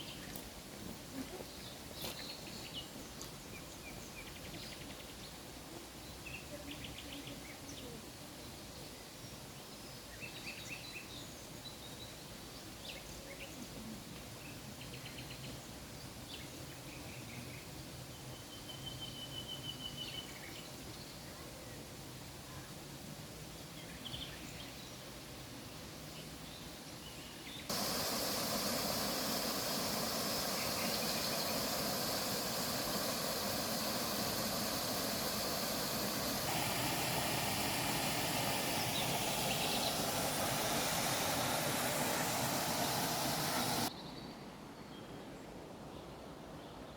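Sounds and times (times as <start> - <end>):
steady background noise: 27.7 - 43.9.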